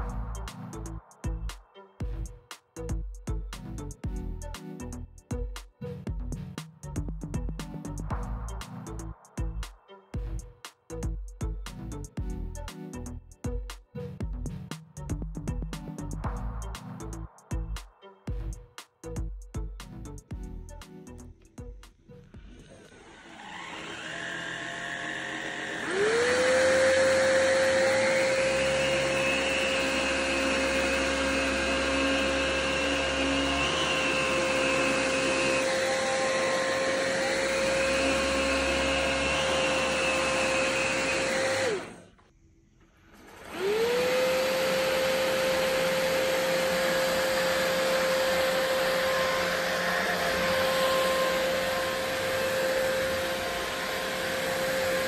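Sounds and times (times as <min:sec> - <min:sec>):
stick vacuum high whine: 0:22.4 - 0:42.3, 0:43.1 - 0:55.0.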